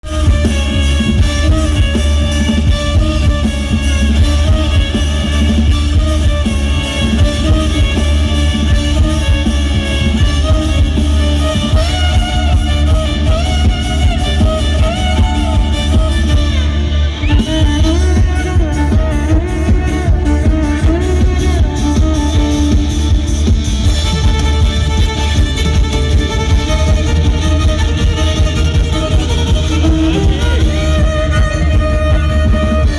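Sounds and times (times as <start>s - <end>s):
loud band music: 0.0s - 32.9s.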